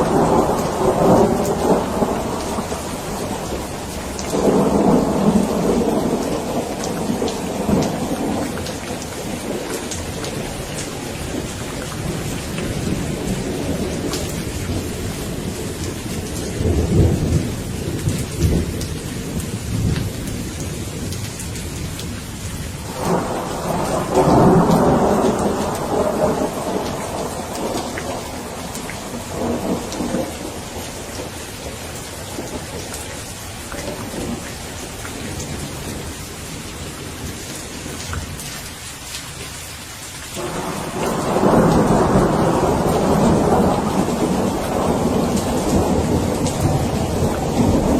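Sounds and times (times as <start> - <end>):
thunderclap: 0.0 - 20.2, 22.8 - 31.8, 40.4 - 47.9
rolling thunder: 0.0 - 22.1, 22.8 - 33.0, 40.4 - 47.9
steady rain: 0.0 - 47.9.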